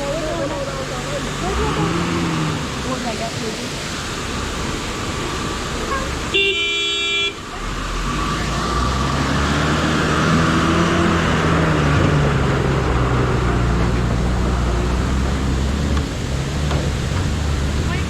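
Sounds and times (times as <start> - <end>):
vehicle engine droning: 0.0 - 6.6, 7.3 - 18.0
road noise: 0.0 - 18.0
vehicle horn honking: 5.9 - 7.4.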